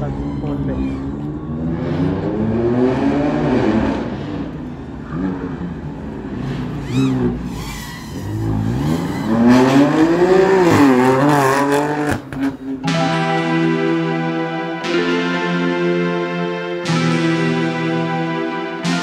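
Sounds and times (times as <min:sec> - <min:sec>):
car engine revving: 0:00.0 - 0:19.0
tyre squeal: 0:06.8 - 0:09.9.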